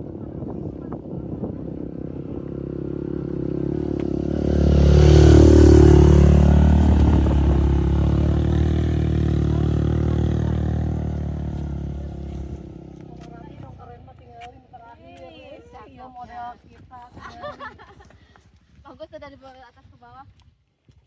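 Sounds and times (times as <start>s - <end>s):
motorcycle engine passing by: 0.0s - 15.6s.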